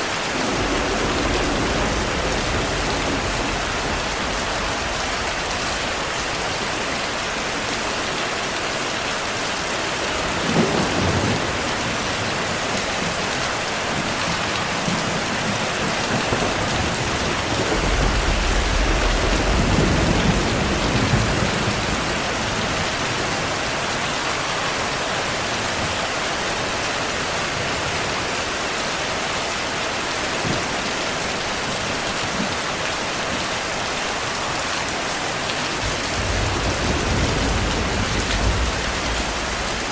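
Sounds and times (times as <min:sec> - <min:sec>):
heavy rain hissing: 0:00.0 - 0:39.9
rolling thunder rumble: 0:00.1 - 0:07.4, 0:10.1 - 0:23.6, 0:35.7 - 0:39.9
thunderclap: 0:00.3 - 0:06.8, 0:13.9 - 0:23.2, 0:35.8 - 0:39.9.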